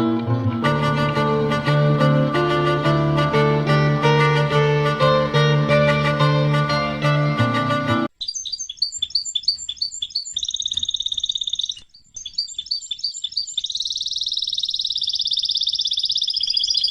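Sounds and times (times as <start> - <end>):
music: 0.0 - 8.1.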